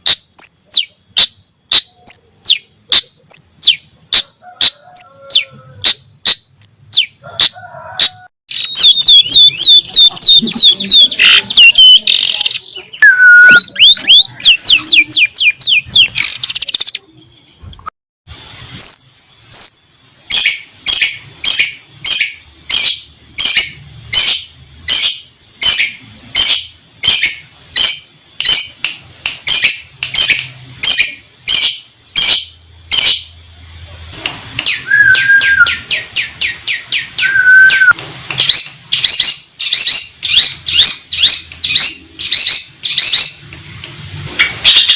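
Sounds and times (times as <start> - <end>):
bird song with sharp notes: 8.5 - 17.9, 34.5 - 43.5.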